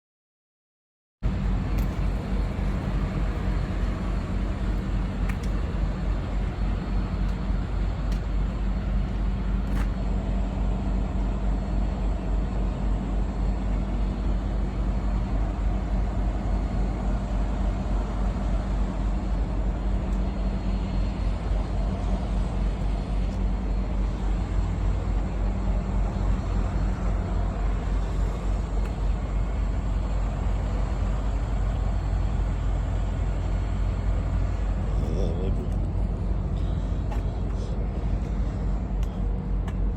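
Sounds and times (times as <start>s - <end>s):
diesel truck engine idling: 1.2s - 39.9s.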